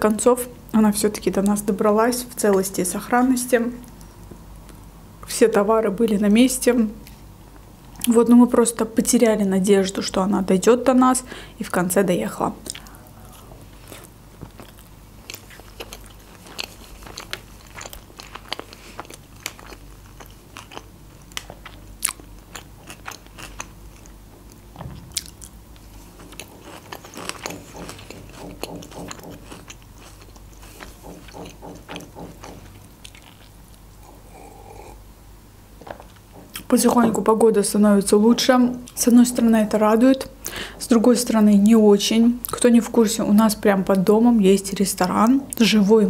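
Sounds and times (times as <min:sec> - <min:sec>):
soft low thud: 0:24.7 - 0:25.4.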